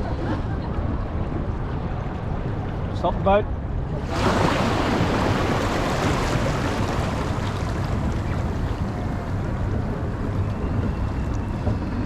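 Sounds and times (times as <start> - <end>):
wind buffeting microphone: 3.8 - 12.0
water splashing and rushing: 4.0 - 11.4.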